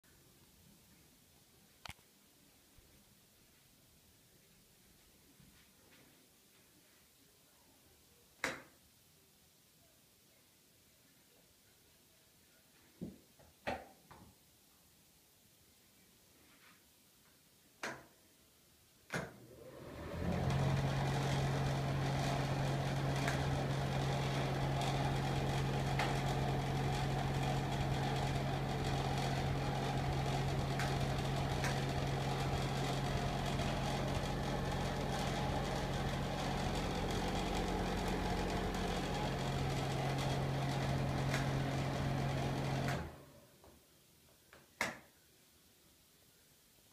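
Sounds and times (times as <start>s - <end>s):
exhaust fan running: 19.3s - 43.4s.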